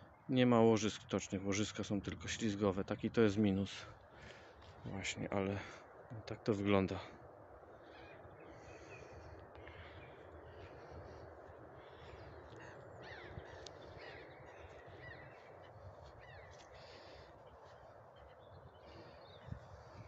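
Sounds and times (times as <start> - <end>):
low outdoor background noise: 0.0 - 20.0
small birds chirping: 0.0 - 20.0
crows cawing: 4.0 - 4.8, 7.5 - 19.9.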